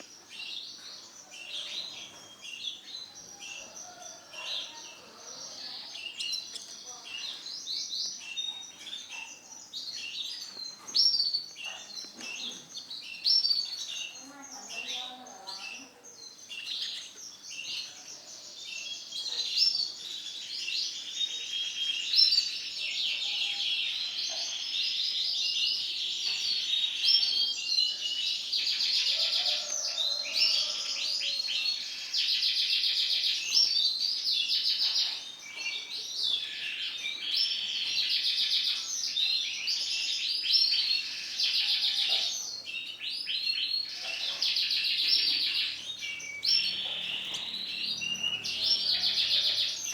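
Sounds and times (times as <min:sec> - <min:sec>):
canary singing: 0:42.9 - 0:49.9.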